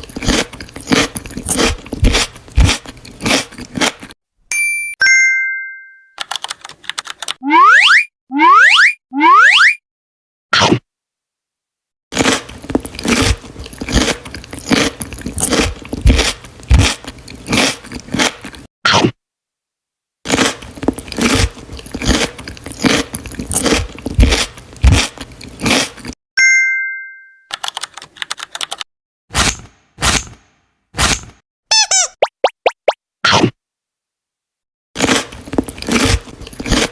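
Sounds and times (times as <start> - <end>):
crunching and chewing crisp food: 0.0 - 4.2, 12.1 - 18.7, 20.3 - 26.2, 35.0 - 36.9
two-note chime: 4.6 - 6.2, 26.4 - 27.5.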